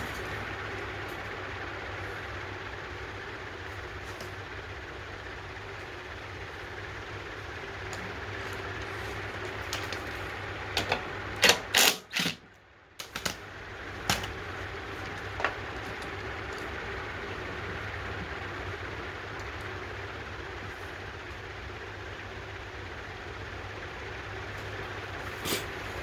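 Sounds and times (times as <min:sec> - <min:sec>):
steady mechanical hum: 0:00.0 - 0:26.0.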